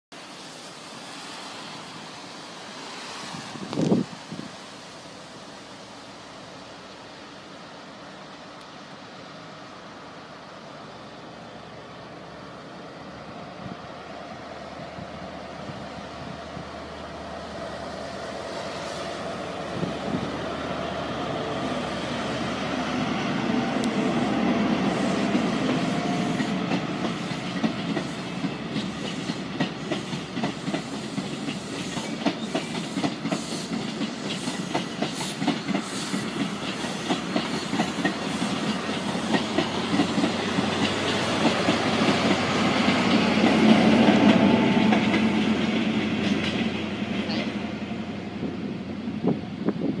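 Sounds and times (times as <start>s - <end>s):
diesel train engine running: 0.6s - 50.0s
wheels clicking over rail joints: 22.8s - 47.4s.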